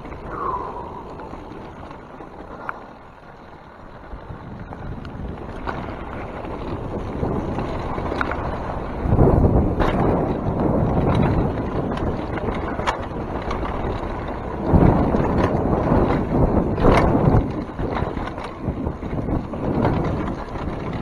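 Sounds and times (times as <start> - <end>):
wind buffeting microphone: 0.0 - 21.0
bike clicks and knocks: 4.9 - 21.0.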